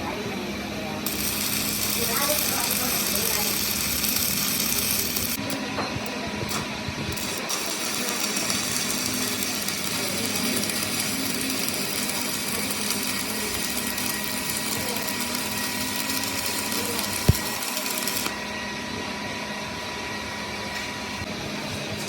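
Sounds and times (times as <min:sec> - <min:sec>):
workshop machinery running: 0:00.0 - 0:22.0.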